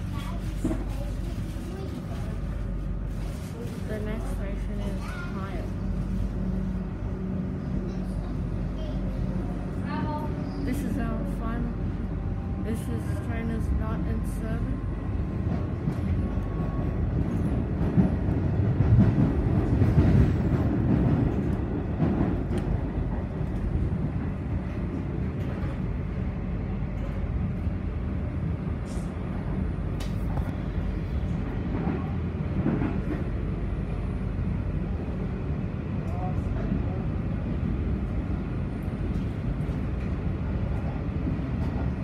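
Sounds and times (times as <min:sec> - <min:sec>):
train low rumble from inside: 0:00.0 - 0:42.0.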